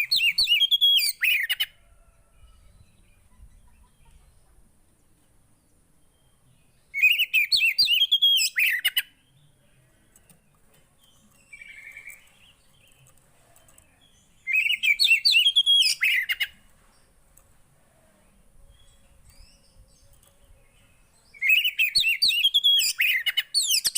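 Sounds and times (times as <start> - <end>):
songbird warbling chirps: 5.6 - 10.2, 11.0 - 17.0, 17.9 - 23.9.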